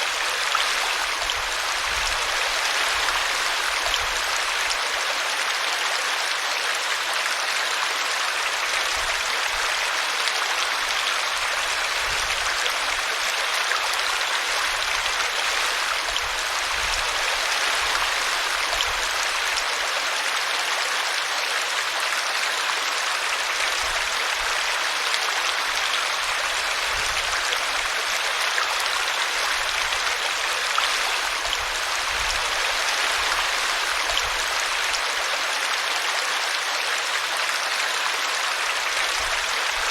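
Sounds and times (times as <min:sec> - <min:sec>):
brook water rushing: 0:00.0 - 0:39.9.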